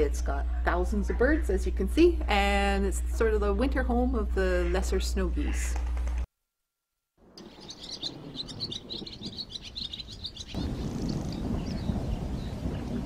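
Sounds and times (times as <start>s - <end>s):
flock of birds chirping: 7.4s - 13.0s.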